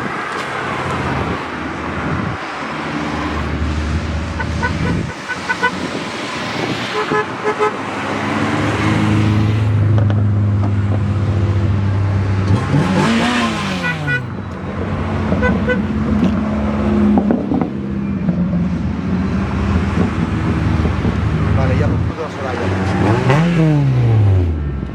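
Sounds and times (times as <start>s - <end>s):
engine revving: 0.0s - 18.2s, 18.8s - 24.9s
car engines running: 0.0s - 24.9s
car horn toots: 4.3s - 6.0s, 6.8s - 8.0s, 13.0s - 14.4s, 15.3s - 16.3s.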